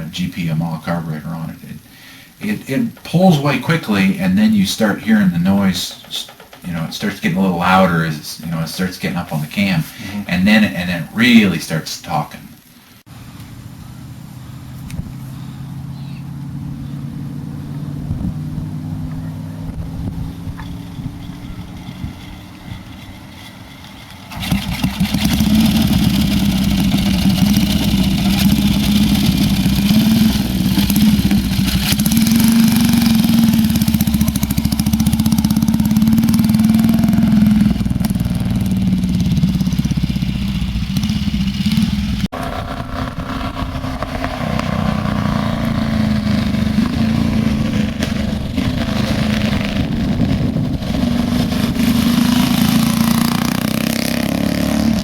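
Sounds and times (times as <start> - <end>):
motorcycle engine running hard: 13.8 - 55.0.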